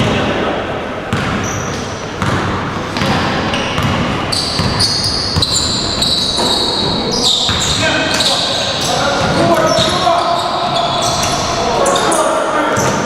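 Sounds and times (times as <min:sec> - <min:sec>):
ball bouncing: 0:01.1 - 0:08.4
shoes squeaking on hall floor: 0:01.2 - 0:13.0.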